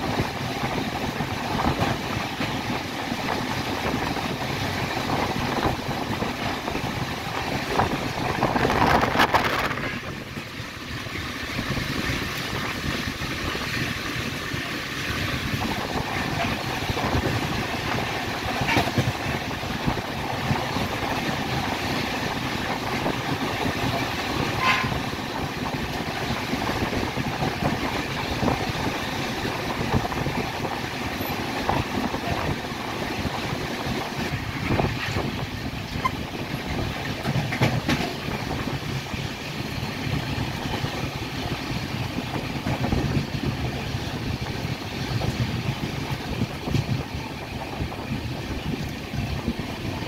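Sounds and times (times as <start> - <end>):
train wheels rumbling on rails: 0.0 - 50.0
sharp clacks of wheels: 34.1 - 39.2.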